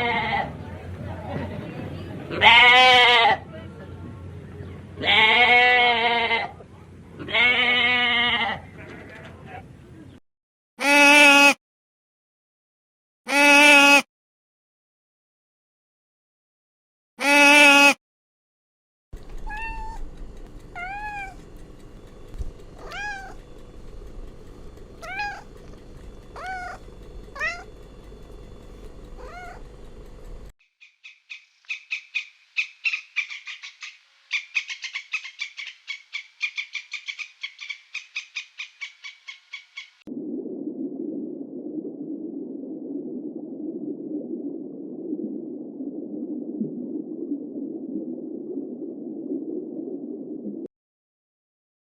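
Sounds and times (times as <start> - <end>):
low background hum: 0.0 - 10.2, 19.2 - 30.5
cat meowing: 19.4 - 20.1, 20.7 - 21.4, 22.8 - 23.4, 25.0 - 25.5, 26.4 - 27.7, 29.2 - 29.7.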